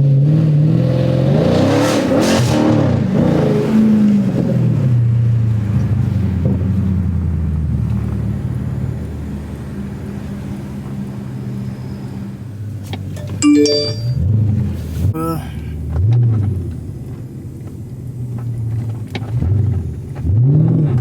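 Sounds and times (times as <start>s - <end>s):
brief sharp high-pitched sound: 13.2s - 14.2s.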